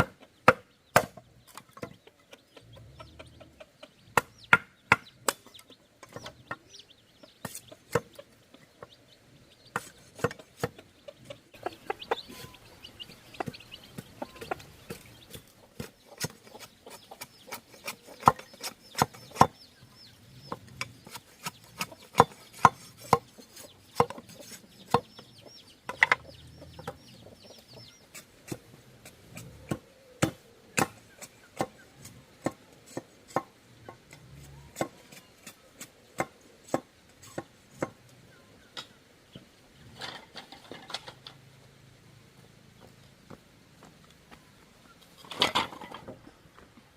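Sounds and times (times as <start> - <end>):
chickens clucking: 0.0 - 46.9
blade chopping bamboo: 21.0 - 25.0.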